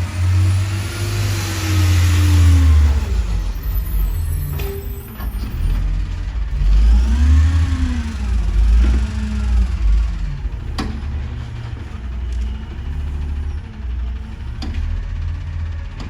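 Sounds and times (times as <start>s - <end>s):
garbage truck engine revving: 0.0s - 16.0s.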